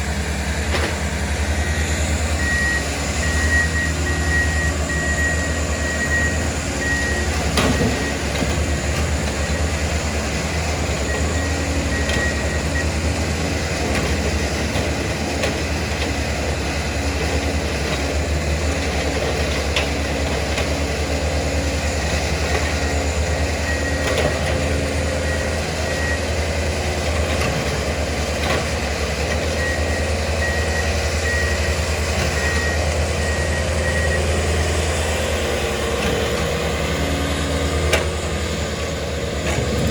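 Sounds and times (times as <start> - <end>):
diesel machines running: 0.0 - 39.9
backup alarm beeping: 1.6 - 13.1, 29.6 - 34.4.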